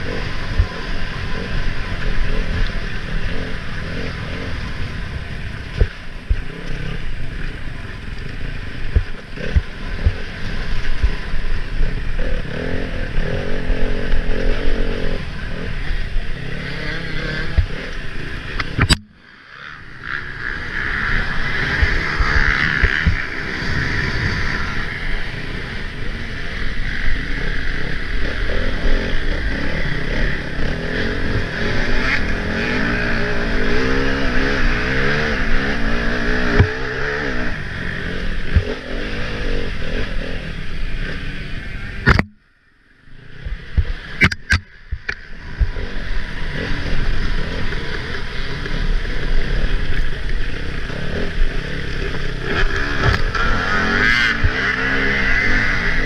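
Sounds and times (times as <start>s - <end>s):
motorcycle engine revving: 0.0s - 56.0s
sharp click: 18.6s - 19.1s, 42.0s - 42.4s, 44.2s - 45.2s.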